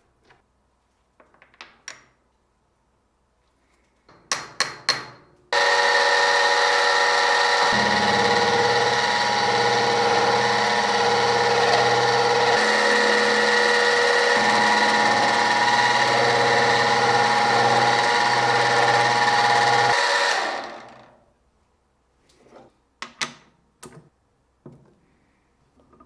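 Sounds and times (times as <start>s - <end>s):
machine tool motor whining: 5.6s - 21.2s.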